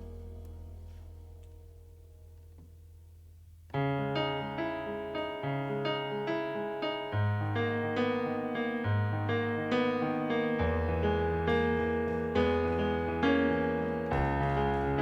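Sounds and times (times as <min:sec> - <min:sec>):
held low note: 0:00.0 - 0:02.5
bass line: 0:00.0 - 0:03.7, 0:11.8 - 0:15.0
piano chords: 0:00.0 - 0:15.0.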